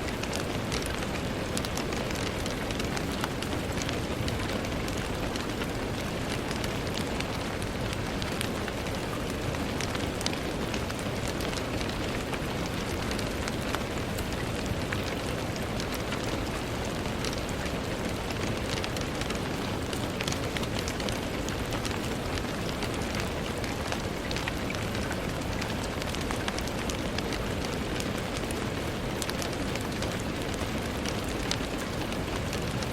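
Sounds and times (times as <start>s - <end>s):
rain on a window: 0.0s - 32.9s.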